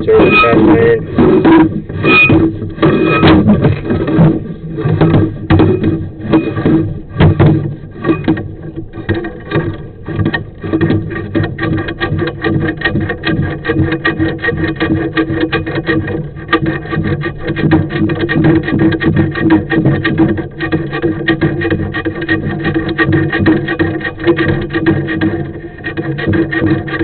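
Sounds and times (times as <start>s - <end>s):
steady hum: 0.0s - 6.8s
cable rattling inside metal pipe: 0.0s - 27.0s.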